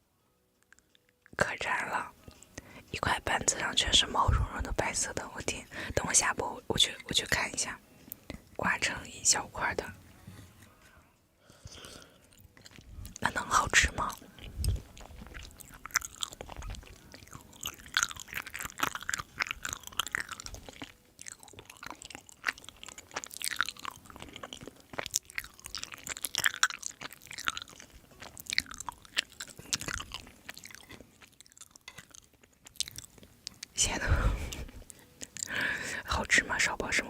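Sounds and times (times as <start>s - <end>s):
person chewing crunchy food: 11.5s - 35.8s.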